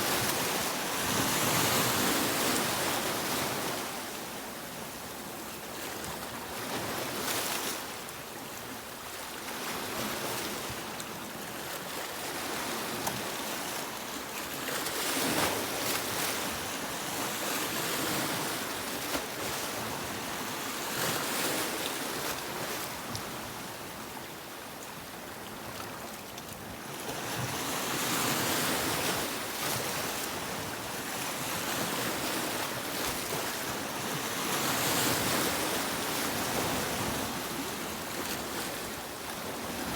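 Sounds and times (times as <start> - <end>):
sea waves breaking on beach: 26.8 - 39.9.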